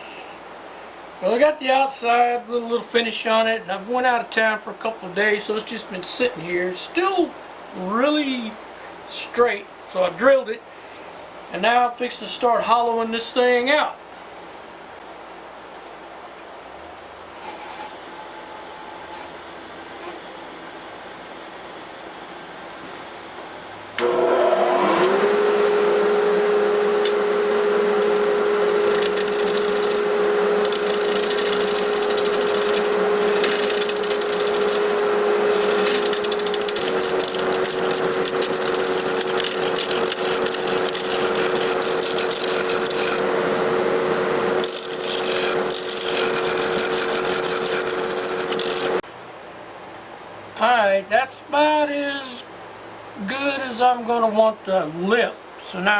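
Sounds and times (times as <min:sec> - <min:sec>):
lathe motor whine: 0:17.8 - 0:49.0
turning tool scraping wood: 0:26.5 - 0:49.0.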